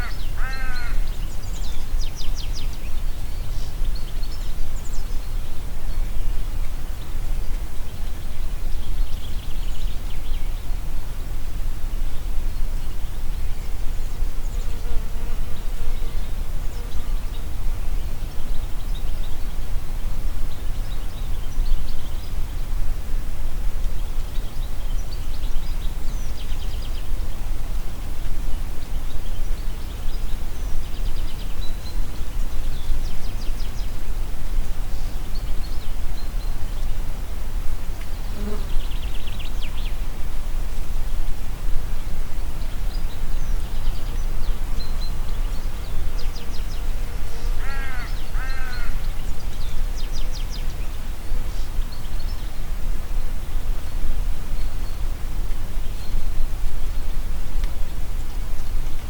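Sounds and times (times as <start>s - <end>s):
songbirds trilling: 0.0s - 6.2s, 42.0s - 52.7s
wind in trees: 0.0s - 59.0s
wind rumble on microphone: 0.0s - 59.0s.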